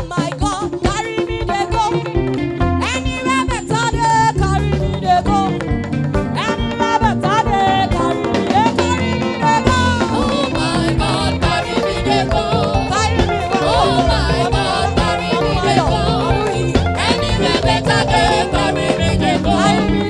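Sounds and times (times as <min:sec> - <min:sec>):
lively band music: 0:00.0 - 0:20.0
percussion beat: 0:00.0 - 0:20.0.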